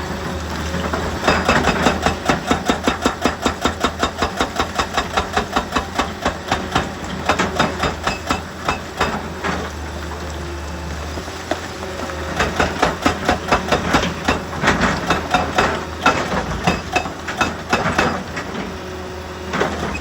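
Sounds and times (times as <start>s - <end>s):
diesel engine drone: 0.0s - 1.4s
hydraulic rock breaker hammering: 0.7s - 9.8s, 11.3s - 20.0s.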